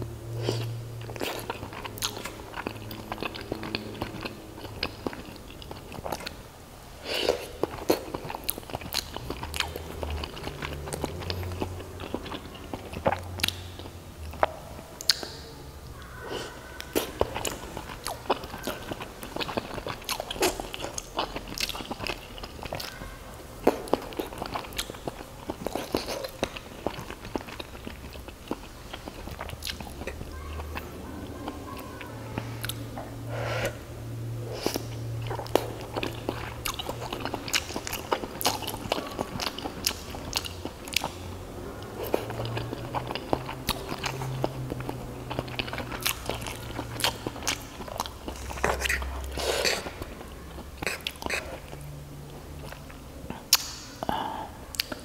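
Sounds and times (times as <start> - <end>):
crunchy wet chewing: 0.3 - 6.4, 7.0 - 33.8, 34.5 - 55.0
sharp mouth clicks: 11.0 - 16.1, 53.4 - 55.0.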